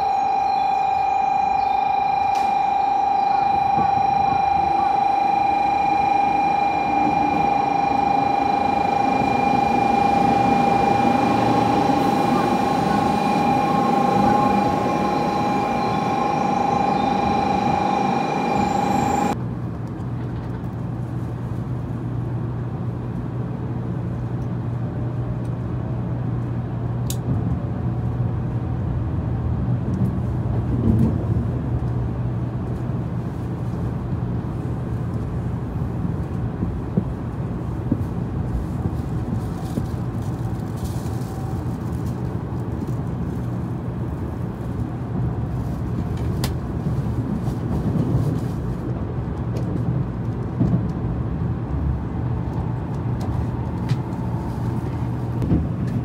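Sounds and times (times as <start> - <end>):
steady high tone: 0.0 - 19.4
train cabin hum at speed: 0.0 - 56.0
train rumbling past: 0.0 - 56.0.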